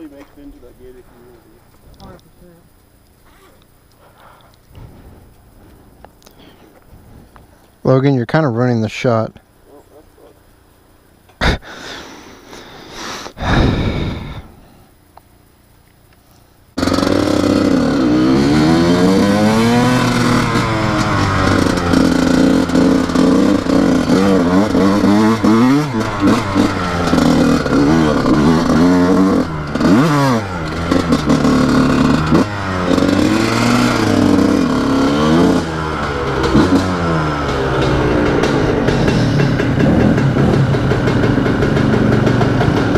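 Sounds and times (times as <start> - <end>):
motorcycle engine revving: 16.8 - 42.9.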